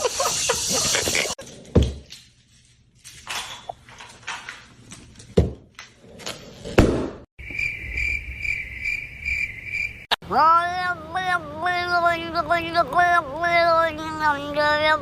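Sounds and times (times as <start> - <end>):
high pulsing chirping: 7.4 - 10.1.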